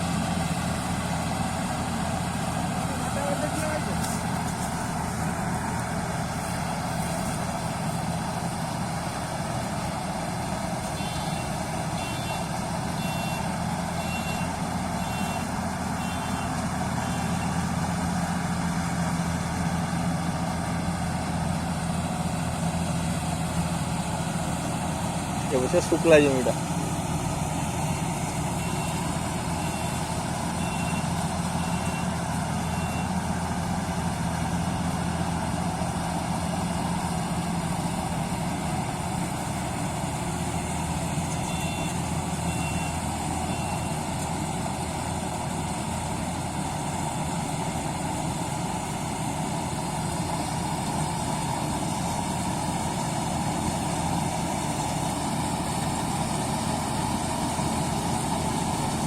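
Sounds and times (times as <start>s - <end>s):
heavy vehicle engine running: 0.0s - 59.0s
short high beeps: 11.0s - 13.4s, 28.6s - 30.0s, 30.6s - 33.1s.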